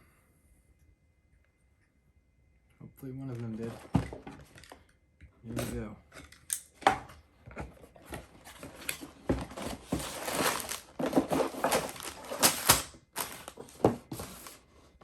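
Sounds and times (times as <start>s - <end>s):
plastic bags rustling: 8.1s - 14.7s
cardboard box being torn open: 9.5s - 14.6s.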